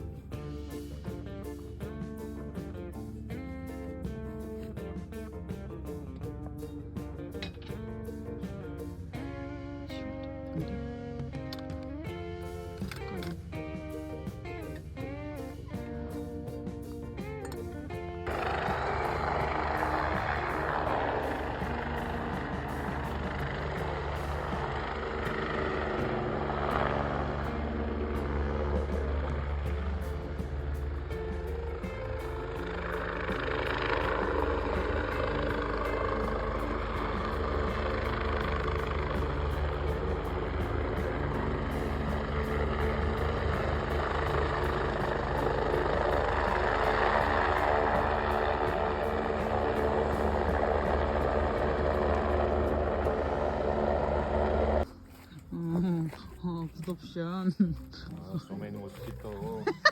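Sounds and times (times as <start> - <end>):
vehicle engine drone: 0.0 - 56.2
constant low hum: 0.0 - 59.9
road noise: 0.0 - 59.9.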